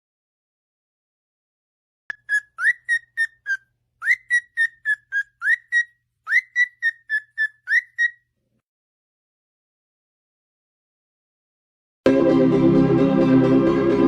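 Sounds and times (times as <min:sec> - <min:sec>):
bird whistling short notes: 0:02.1 - 0:08.2.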